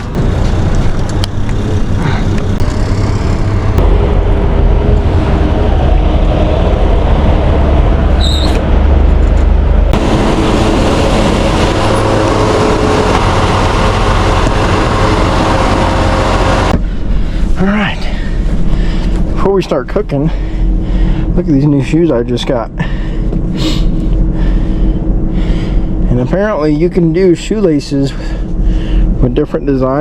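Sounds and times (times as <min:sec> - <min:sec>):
wind noise: 0:00.0 - 0:17.4
road traffic: 0:00.0 - 0:29.8
deep rumble: 0:00.0 - 0:30.0.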